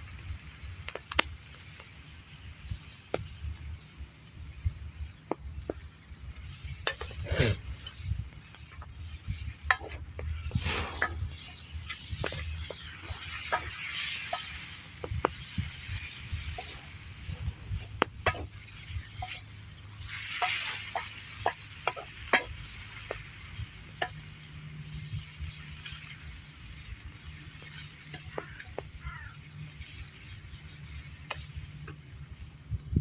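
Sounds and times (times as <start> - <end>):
meat sizzling in a pan: 0.0 - 33.0
utensil scraping against pan: 6.8 - 22.7.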